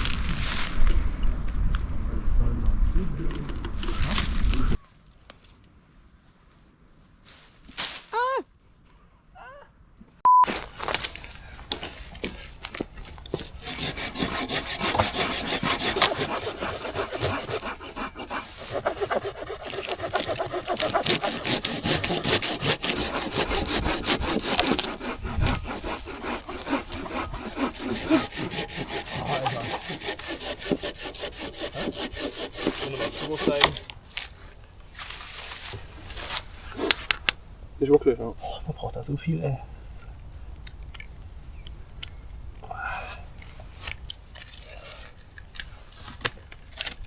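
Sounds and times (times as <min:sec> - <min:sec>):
hand saw cutting wood: 0:10.5 - 0:33.9.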